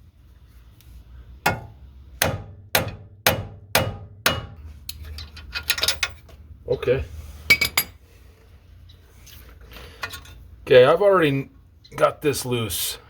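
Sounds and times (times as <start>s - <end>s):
hammer striking steel: 1.5s - 4.7s.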